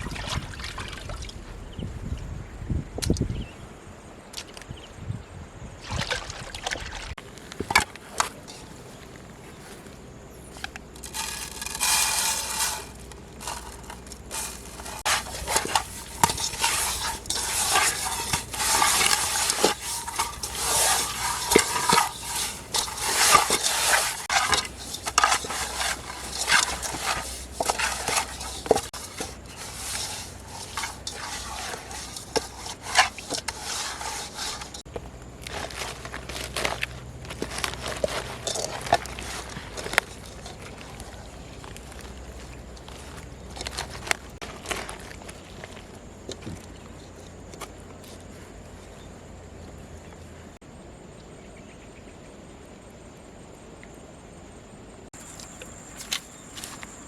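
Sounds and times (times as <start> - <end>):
food stirred in a pan: 10.9 - 45.7.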